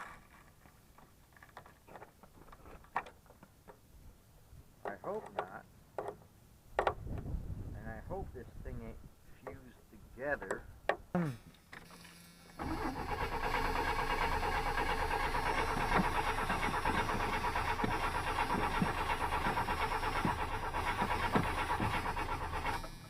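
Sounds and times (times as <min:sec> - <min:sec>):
engine cranking by starter: 0:11.4 - 0:23.0.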